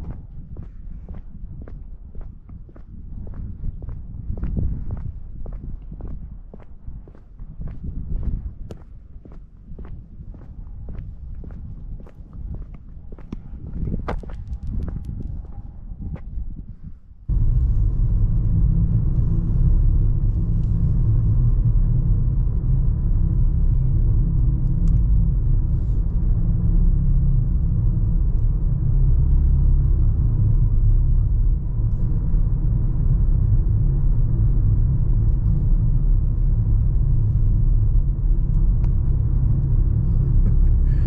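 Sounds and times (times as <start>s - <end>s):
car interior road rumble: 17.3s - 41.0s.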